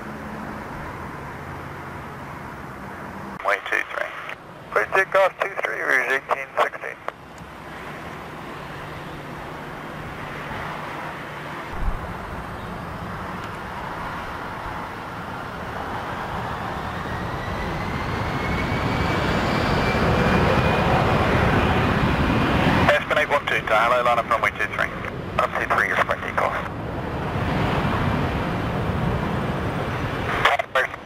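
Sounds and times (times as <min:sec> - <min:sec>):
jet engines at takeoff: 0:00.0 - 0:31.0
low thump: 0:11.7 - 0:12.1.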